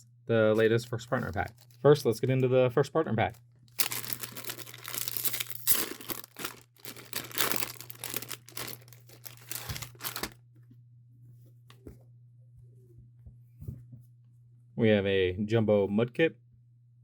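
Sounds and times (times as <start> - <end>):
low steady hum: 0.0 - 17.0
small handling sounds: 1.1 - 1.9, 3.2 - 10.8
packaging tearing and crinkling: 3.7 - 10.4.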